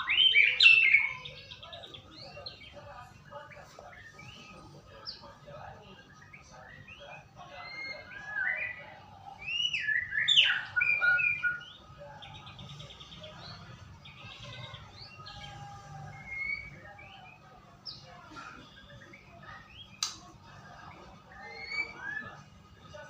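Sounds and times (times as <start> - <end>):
songbird whistling song: 0.0 - 2.6, 6.1 - 18.1, 21.2 - 22.5
buzzy rattling bird phrases: 0.0 - 23.0.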